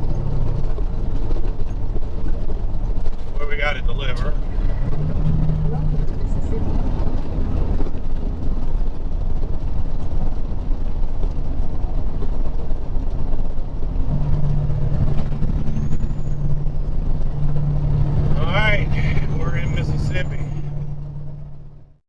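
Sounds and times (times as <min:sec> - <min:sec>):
steady hum: 0:00.0 - 0:08.6, 0:13.7 - 0:21.9
diesel engine rumble: 0:00.0 - 0:22.0.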